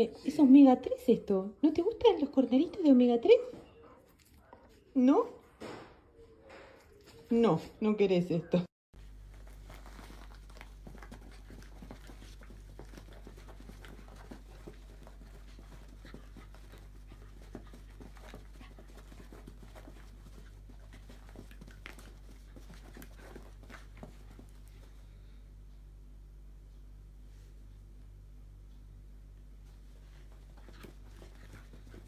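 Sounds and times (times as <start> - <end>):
dog panting faintly: 2.0 - 5.5, 9.5 - 25.4, 29.8 - 32.0
steady low hum: 9.0 - 32.0.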